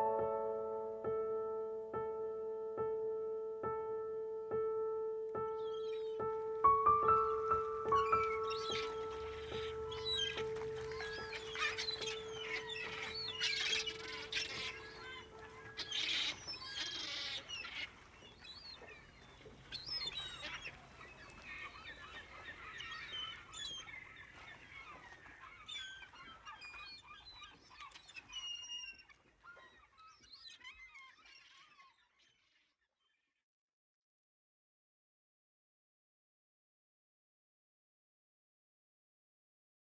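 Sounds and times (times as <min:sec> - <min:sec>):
wild birds calling: 0:05.5 - 0:32.3
honking bird calls: 0:06.9 - 0:18.0.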